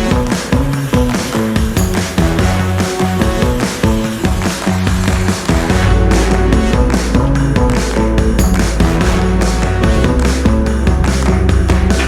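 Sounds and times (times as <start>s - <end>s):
music with heavy bass beat: 0.0s - 12.0s.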